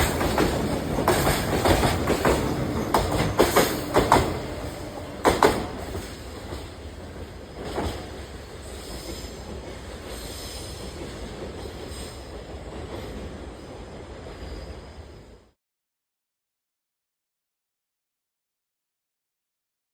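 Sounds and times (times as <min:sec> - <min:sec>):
train wheels clacking over rail joints: 0:00.0 - 0:13.3
freight train rumble: 0:00.0 - 0:15.5.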